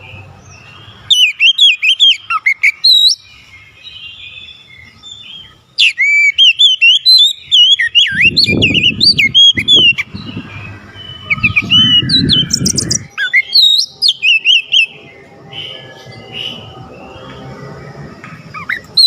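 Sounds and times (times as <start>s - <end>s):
bird singing whistled phrases: 1.0s - 17.3s
low rumbling noise: 8.1s - 13.2s, 13.9s - 19.0s.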